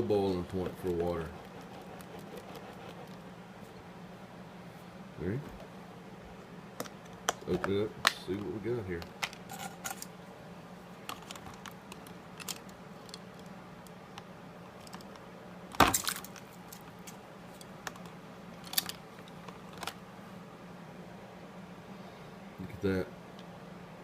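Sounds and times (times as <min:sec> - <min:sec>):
faint low steady hum: 0:00.0 - 0:24.0
clicks and knocks of handling: 0:06.8 - 0:10.1, 0:11.0 - 0:20.0.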